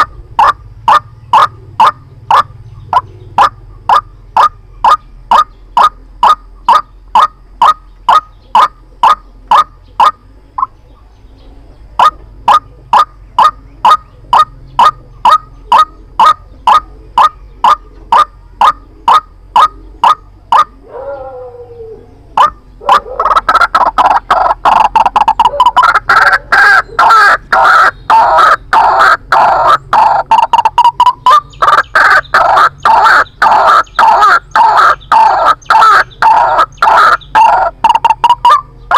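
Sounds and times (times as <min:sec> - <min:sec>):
waterhen calls: 0:00.0 - 0:38.9.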